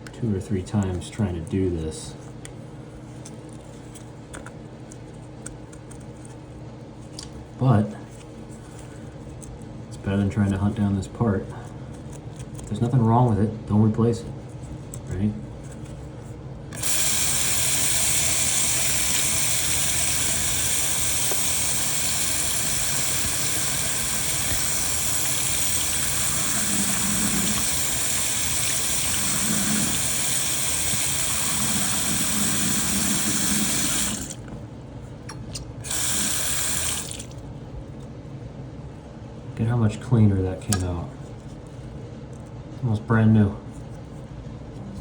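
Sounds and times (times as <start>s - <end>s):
faucet water running: 16.8s - 34.5s, 35.8s - 37.4s.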